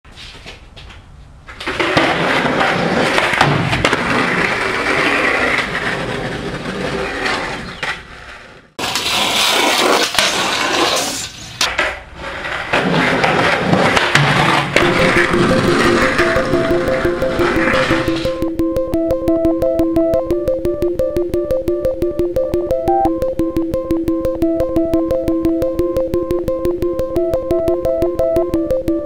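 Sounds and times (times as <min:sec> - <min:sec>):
skateboard wheels rolling on pavement: 0:00.1 - 0:18.4
skateboard clacks: 0:00.4 - 0:20.2.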